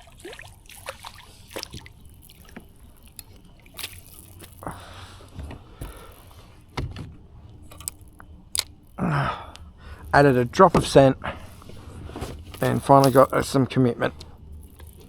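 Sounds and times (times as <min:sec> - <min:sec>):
small clicks and splashes: 0:00.0 - 0:04.9, 0:07.6 - 0:10.6, 0:12.5 - 0:15.0
water sloshing and dripping: 0:00.0 - 0:15.0.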